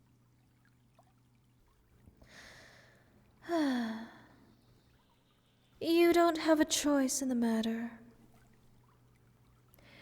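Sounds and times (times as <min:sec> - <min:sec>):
woman sighing hum: 0:03.4 - 0:04.4.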